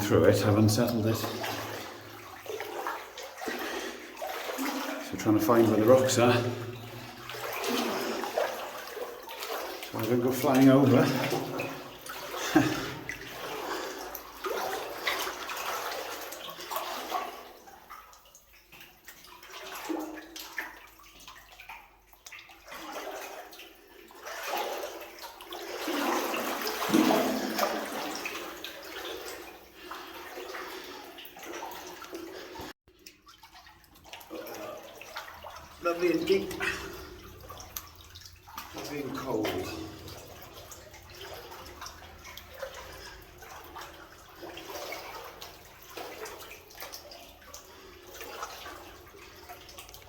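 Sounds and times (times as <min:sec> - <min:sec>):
water sloshing around wading legs: 0:00.0 - 0:50.0.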